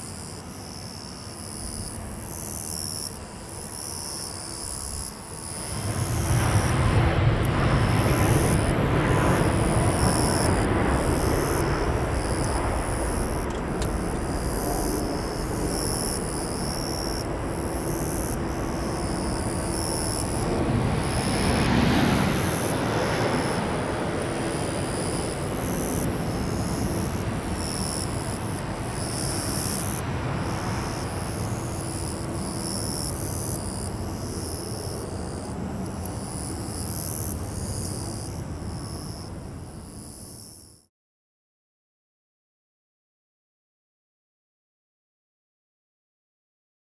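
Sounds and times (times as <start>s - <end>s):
jet engines rumbling hiss: 5.2s - 32.7s.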